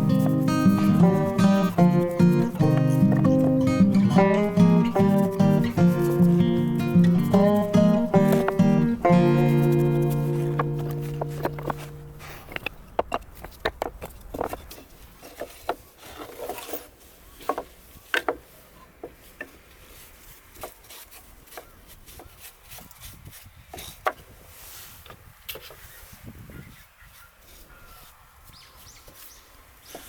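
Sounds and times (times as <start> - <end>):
rubbing and scraping: 0.0 - 18.6
wooden knocks and clicks: 9.8 - 15.8, 17.4 - 18.4.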